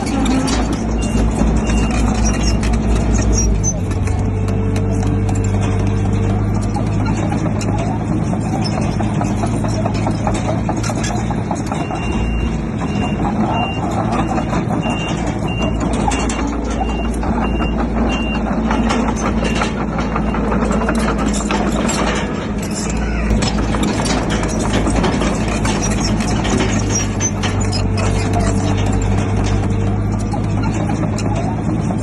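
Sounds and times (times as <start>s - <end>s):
heavy machinery diesel engine: 0.0s - 32.0s
metal clanking: 0.0s - 32.0s
reversing alarm beeping: 0.9s - 2.7s, 11.7s - 20.7s.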